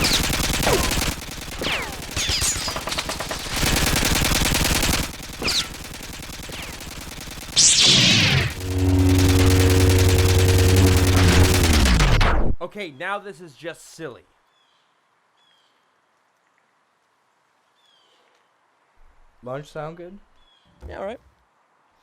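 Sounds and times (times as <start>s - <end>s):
machine-gun fire: 0.0s - 12.5s
loud steady hum: 7.5s - 12.4s.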